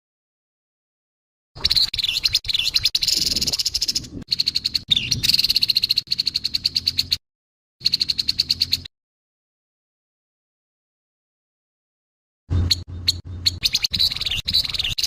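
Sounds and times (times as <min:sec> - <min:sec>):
bird rattling call: 0:01.6 - 0:07.2, 0:12.6 - 0:15.0.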